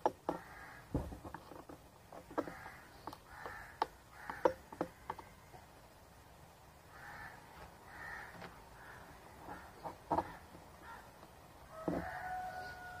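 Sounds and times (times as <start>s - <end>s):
faint crow caws: 0.3s - 1.1s, 2.3s - 5.6s, 6.9s - 13.0s.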